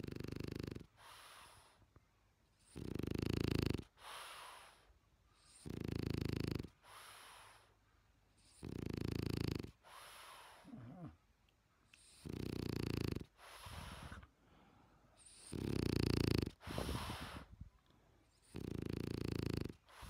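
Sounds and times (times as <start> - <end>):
dog snoring loudly: 0.0 - 1.5, 2.6 - 4.7, 5.5 - 7.4, 8.4 - 11.2, 12.0 - 14.2, 15.2 - 17.5, 18.4 - 20.0.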